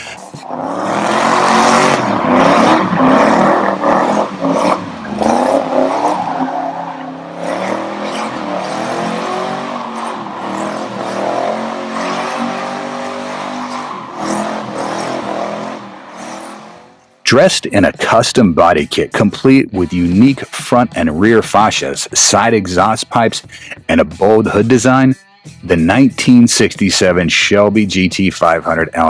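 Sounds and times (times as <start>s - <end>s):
car engine revving: 0.0s - 17.2s.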